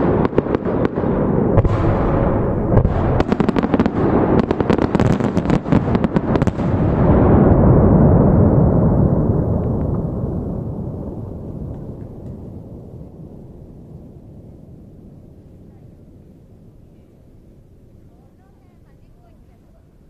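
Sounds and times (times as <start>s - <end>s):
fireworks bursting: 0.0s - 14.2s
rolling rumble of booms: 0.0s - 20.0s.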